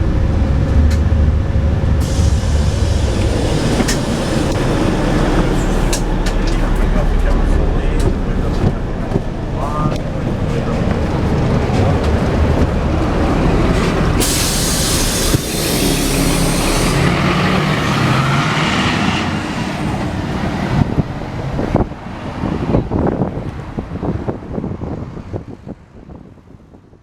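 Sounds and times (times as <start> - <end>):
bus diesel engine running: 0.0 - 26.6
compressed air hiss: 2.0 - 6.1, 14.2 - 17.2.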